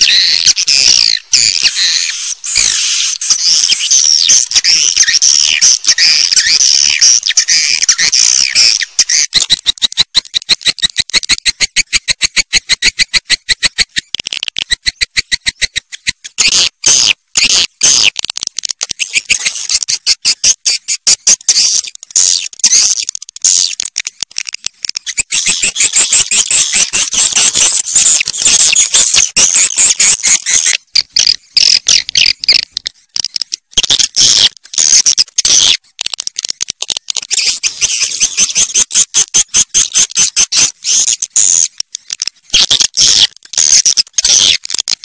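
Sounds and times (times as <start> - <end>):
high twittering chirps: 0.0 - 14.1, 14.7 - 18.1, 24.8 - 32.8, 37.2 - 41.8
rapid clicking bird calls: 0.0 - 45.0.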